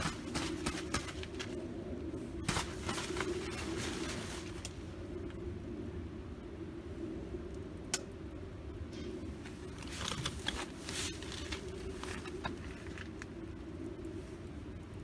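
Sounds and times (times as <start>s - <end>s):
wood fire crackling: 0.0s - 5.4s, 9.3s - 15.0s.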